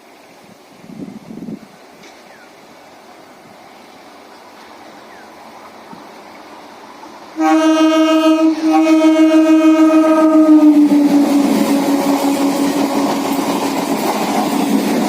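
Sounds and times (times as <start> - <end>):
train rumbling past: 0.0 - 15.0
train horn blasts: 7.4 - 13.4.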